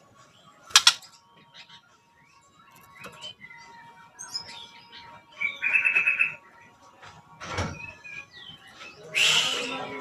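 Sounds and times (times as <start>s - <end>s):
bird chirps and whistled notes: 7.7s - 9.9s.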